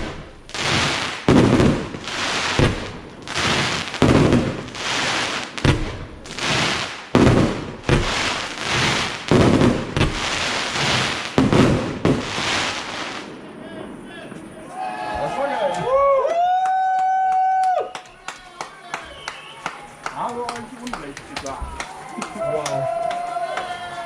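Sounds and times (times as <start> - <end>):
firework hissing crackle: 0.0 - 13.4
firework bangs: 0.0 - 15.5.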